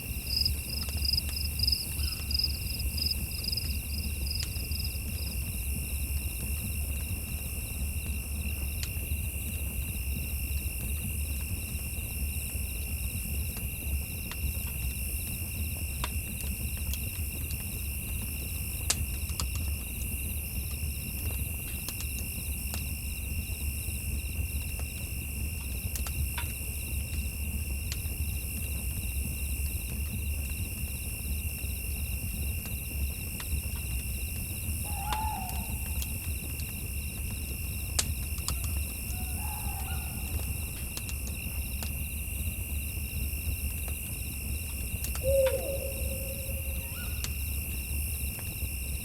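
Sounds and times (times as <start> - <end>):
owl hooting: 2.0 - 2.3, 34.8 - 36.2, 38.5 - 40.7, 45.2 - 47.4.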